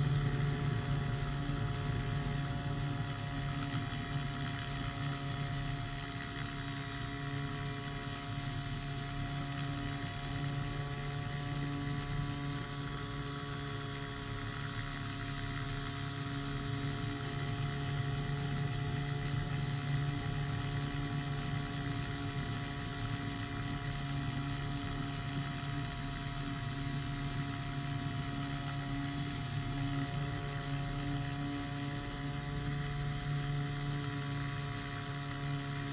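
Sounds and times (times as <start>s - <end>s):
engine and propeller droning: 0.0s - 35.9s.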